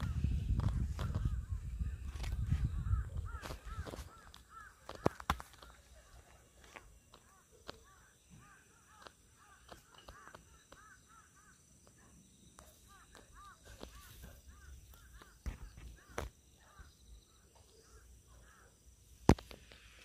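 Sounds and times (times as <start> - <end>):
bird calling: 0.0 - 20.0.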